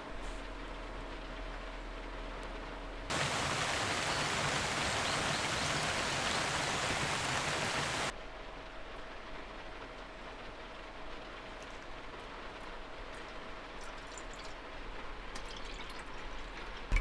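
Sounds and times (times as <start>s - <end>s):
faint steady hum: 3.0s - 8.1s
heavy rain rushing: 3.1s - 8.1s
steady rain: 3.1s - 8.1s.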